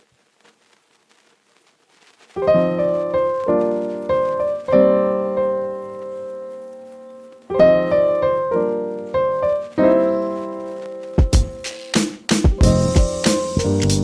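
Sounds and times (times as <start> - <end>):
gentle piano music: 2.4 - 14.0.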